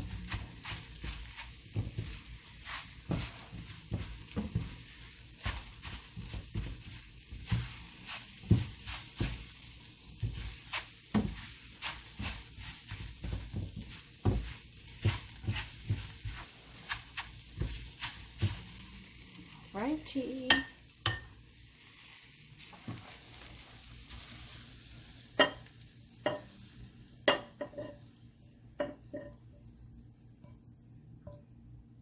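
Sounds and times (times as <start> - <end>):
spatula scraping a pan: 0.0 - 19.6, 20.5 - 25.7
eggs sizzling: 0.0 - 30.9.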